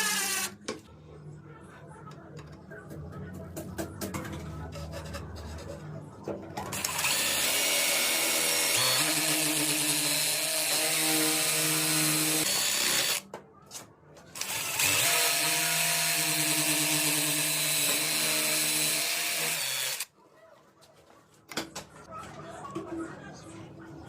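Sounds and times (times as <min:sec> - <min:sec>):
electric drill running: 0:00.0 - 0:00.5, 0:06.8 - 0:13.2, 0:14.4 - 0:20.1.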